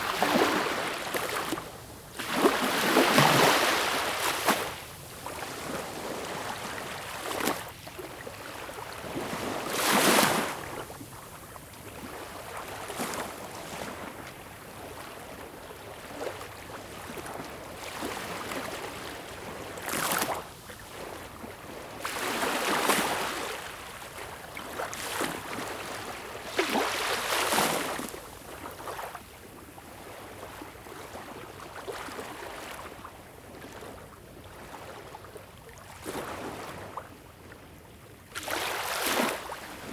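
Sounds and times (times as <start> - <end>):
sea waves breaking: 0.0 - 1.6.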